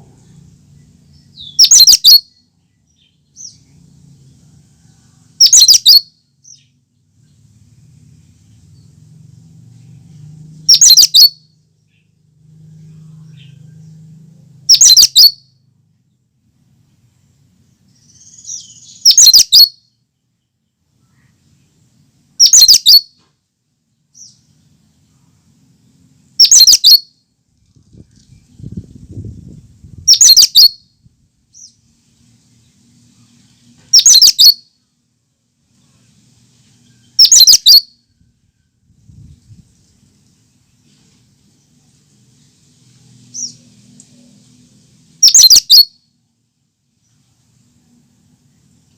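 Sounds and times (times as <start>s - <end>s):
bird calling high-pitched notes: 1.3s - 3.6s, 5.4s - 6.7s, 10.7s - 11.5s, 14.7s - 15.5s, 18.0s - 19.8s, 22.4s - 23.2s, 26.4s - 27.1s, 30.1s - 30.9s, 33.9s - 34.7s, 37.0s - 38.1s, 45.2s - 46.0s.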